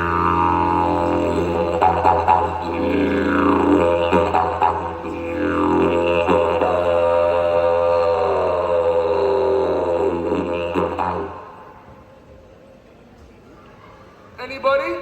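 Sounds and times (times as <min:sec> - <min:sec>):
didgeridoo drone: 0:00.0 - 0:11.8
howling calls through didgeridoo: 0:00.0 - 0:11.8.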